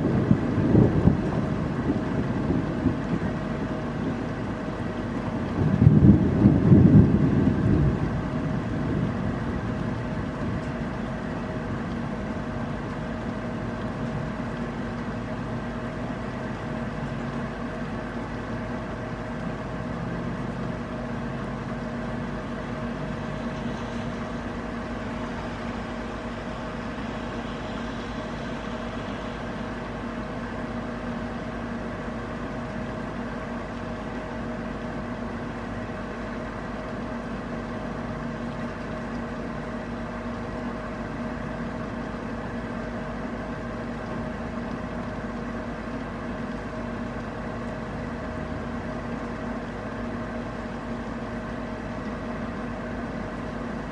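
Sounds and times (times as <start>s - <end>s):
thunder rumble: 0.0s - 12.4s
faint steady hum: 0.0s - 53.9s
heavy rain: 0.0s - 53.9s.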